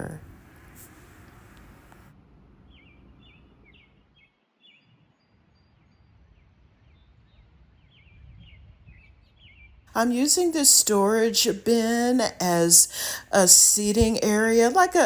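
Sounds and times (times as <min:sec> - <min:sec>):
low background hiss: 0:10.0 - 0:15.0.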